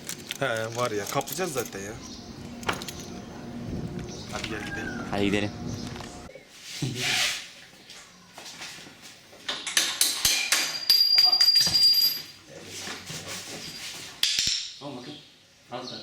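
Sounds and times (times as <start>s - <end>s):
metal clinks and rattles: 0.0s - 1.9s, 9.6s - 12.4s
thin high ringing tone: 10.7s - 12.4s.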